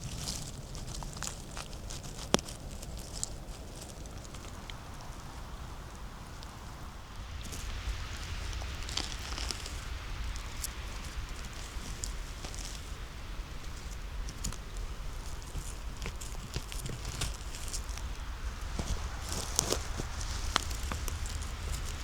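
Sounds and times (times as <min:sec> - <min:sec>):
footsteps crunching leaves and twigs: 0:00.0 - 0:22.0
low rumble: 0:04.0 - 0:22.0.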